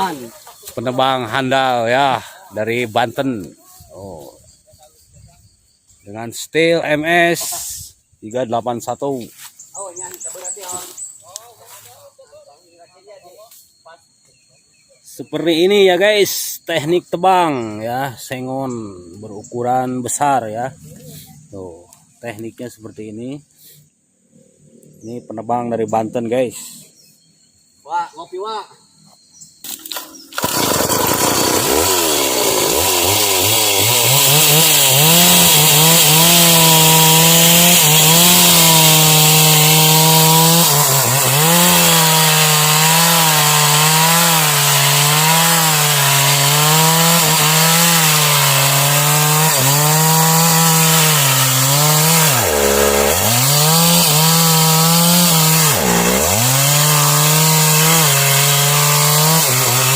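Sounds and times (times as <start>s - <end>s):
chainsaw cutting wood: 29.6s - 59.9s.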